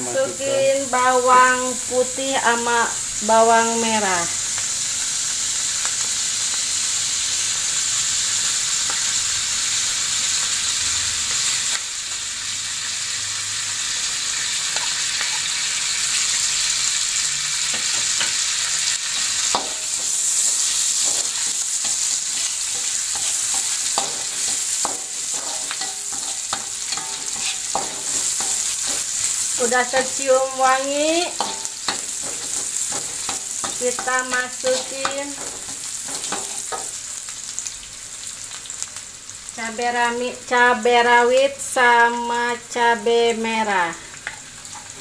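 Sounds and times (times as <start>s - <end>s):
garlic frying in hot oil: 0.0s - 45.0s
metal spatula scraping and tapping: 19.2s - 20.2s, 21.0s - 29.4s, 31.4s - 36.9s.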